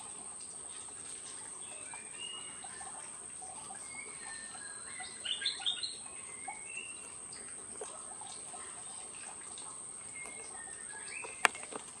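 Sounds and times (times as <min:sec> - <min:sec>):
wild birds chirping: 0:08.5 - 0:12.0.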